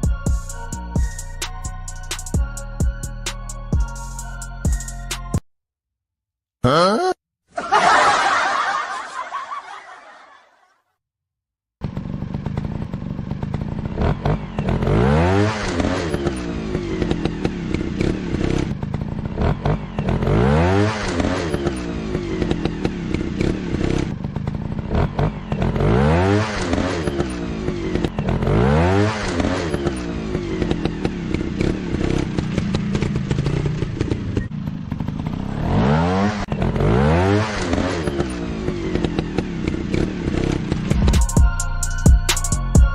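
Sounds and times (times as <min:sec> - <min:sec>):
person laughing: 0:06.6 - 0:10.6
dirt bike engine revving: 0:11.8 - 0:41.2.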